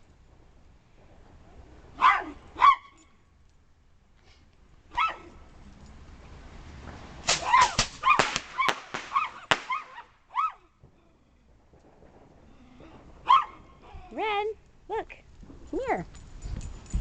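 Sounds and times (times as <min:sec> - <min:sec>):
dog barking excitedly: 0:02.0 - 0:03.0, 0:04.9 - 0:05.3, 0:13.2 - 0:13.6
firework hissing: 0:06.6 - 0:10.2
firework cracks: 0:06.6 - 0:14.8.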